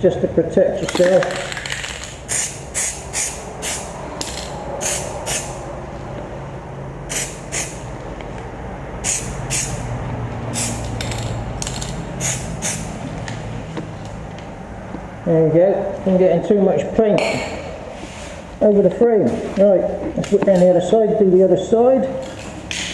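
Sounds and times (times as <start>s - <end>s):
spray can hissing in bursts: 2.3s - 3.9s, 4.8s - 5.6s, 7.1s - 7.8s, 9.0s - 9.8s, 10.5s - 11.0s, 12.2s - 13.0s.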